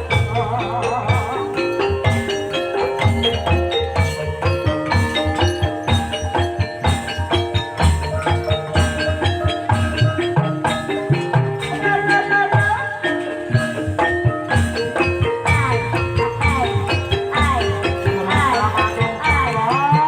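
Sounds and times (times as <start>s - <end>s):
mallet-struck keyed instruments: 0.0s - 20.0s
low drum pattern: 13.5s - 19.7s.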